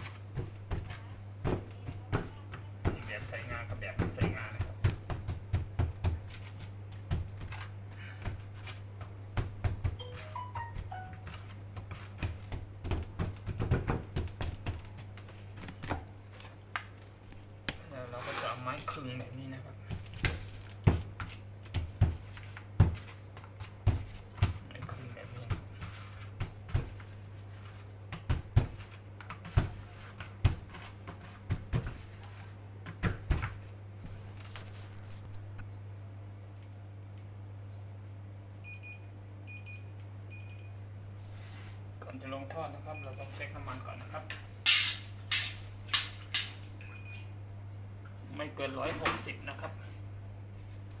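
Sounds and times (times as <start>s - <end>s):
hands pressing dough: 0.0s - 17.0s, 19.0s - 34.2s.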